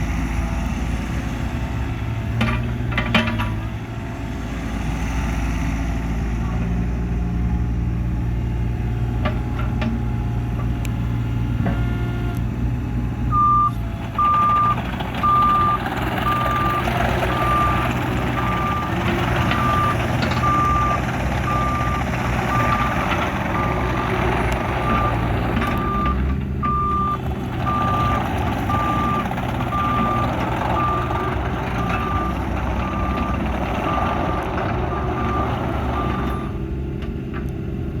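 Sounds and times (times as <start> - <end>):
diesel engine running: 0.0 - 38.0
travel alarm beeping: 13.3 - 16.8, 25.8 - 30.2.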